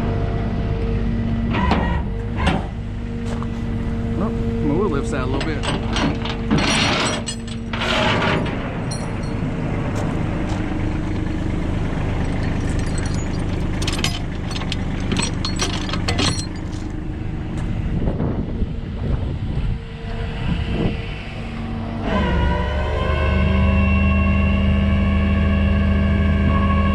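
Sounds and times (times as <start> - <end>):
engine running: 0.0 - 26.8
sharp metallic clicks and clanks: 5.3 - 9.5, 12.1 - 17.0.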